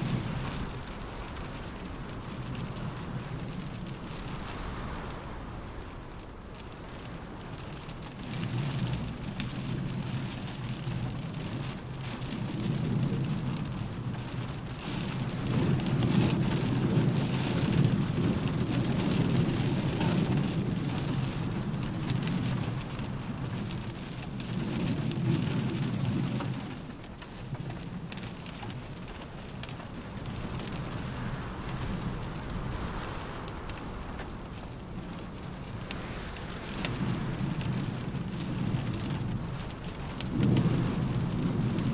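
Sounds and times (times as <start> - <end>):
wind howling: 0.0 - 7.8, 28.1 - 41.9
rain drumming on a car roof: 0.0 - 41.9.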